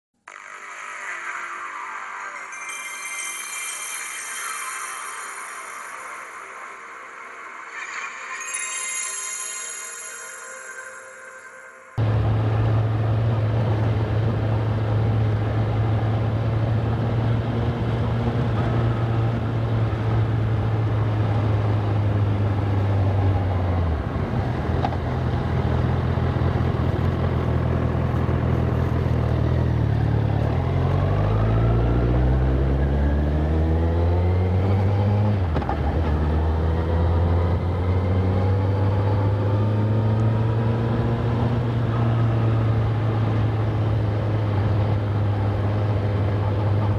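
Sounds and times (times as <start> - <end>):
motorcycle engine revving: 12.0 - 46.9.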